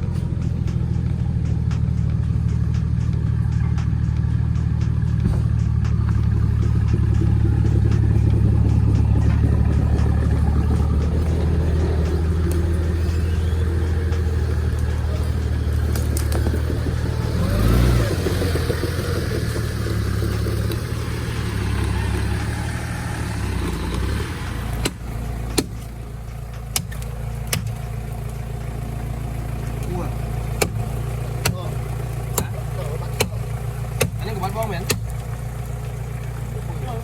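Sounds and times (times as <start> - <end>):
off-road vehicle engine revving: 0.0 - 37.0
sharp knocks: 24.8 - 25.9, 30.6 - 31.7, 33.2 - 35.2.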